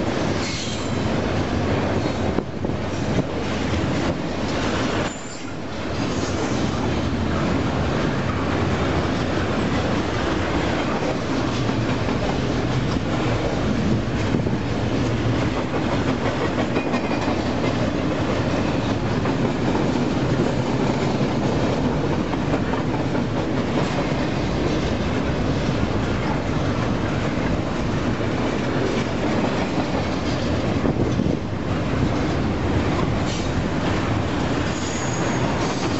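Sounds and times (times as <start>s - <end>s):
steel wheels running on rails: 0.0s - 35.9s.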